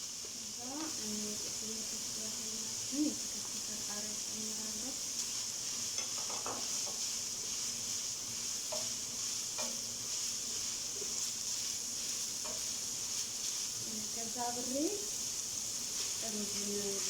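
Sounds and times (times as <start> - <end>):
meat sizzling in a pan: 0.0 - 17.0
spoon scraping a pan: 5.2 - 14.4.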